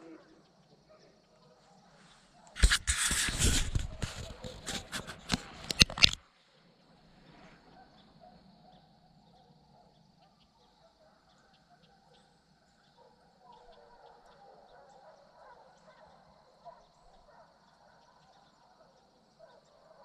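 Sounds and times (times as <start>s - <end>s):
distant animal calls: 6.6s - 20.0s.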